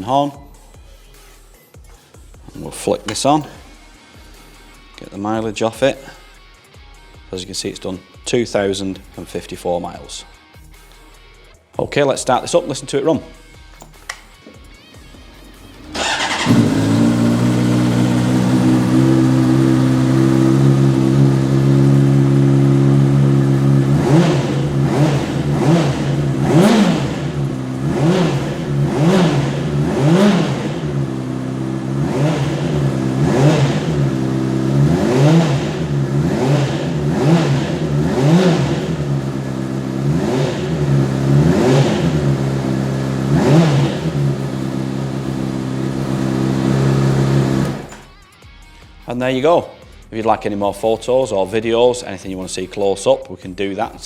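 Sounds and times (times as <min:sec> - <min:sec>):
motorcycle engine idling and revving: 0:15.1 - 0:48.1.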